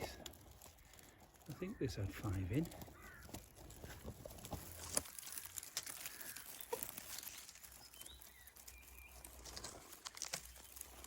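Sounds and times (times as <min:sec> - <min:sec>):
leaves and grass rustling: 0:00.0 - 0:11.0
faint bird chirps: 0:05.4 - 0:09.8.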